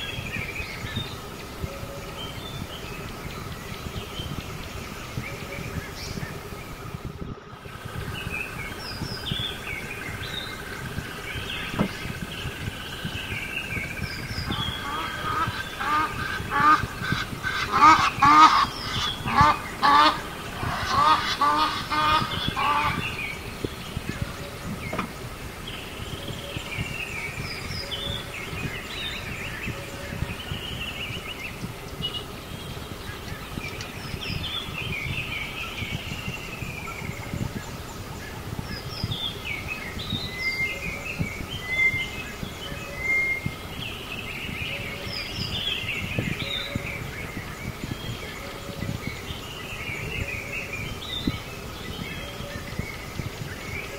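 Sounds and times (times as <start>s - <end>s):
outdoor background noise: 0.0s - 53.9s
small birds chirping: 0.0s - 53.9s
birds honking: 8.0s - 26.0s.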